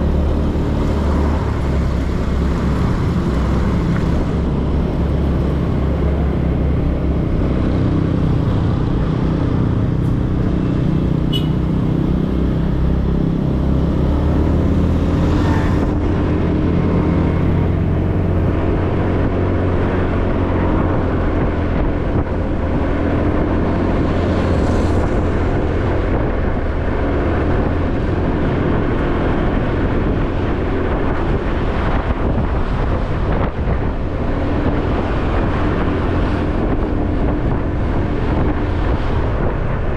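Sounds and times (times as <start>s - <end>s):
road and traffic noise: 0.0s - 39.9s.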